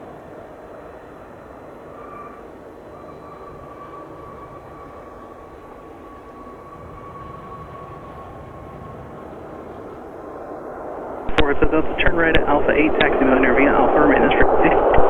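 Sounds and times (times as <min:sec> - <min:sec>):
high jet whine: 0:00.0 - 0:15.0
jet engine rushing: 0:06.5 - 0:15.0.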